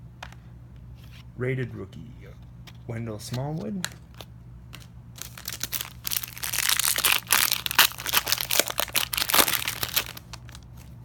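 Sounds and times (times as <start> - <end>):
plastic wrapper crinkling: 4.8 - 11.0.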